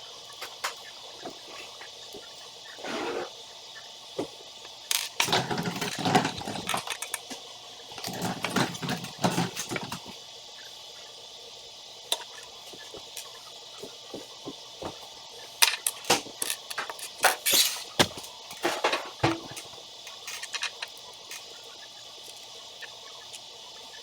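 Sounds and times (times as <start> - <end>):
building pieces rattling and clicking: 4.9 - 7.3, 8.0 - 10.1, 15.6 - 17.8, 18.5 - 21.5.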